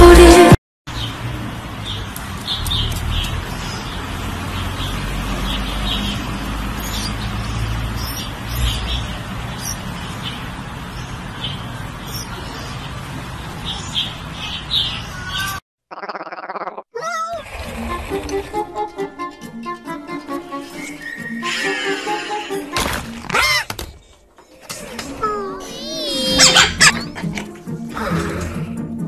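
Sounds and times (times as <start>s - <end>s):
small bird chirping: 4.7s - 10.4s, 11.0s - 12.9s.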